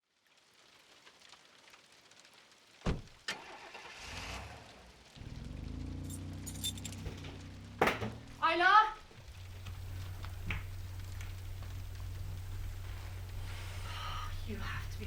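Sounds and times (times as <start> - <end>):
car engine starting and idling: 2.9 - 15.0
short rattle: 6.1 - 8.4.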